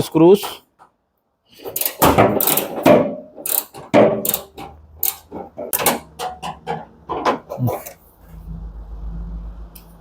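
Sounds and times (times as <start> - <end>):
screws being undone clicking: 3.4 - 5.2.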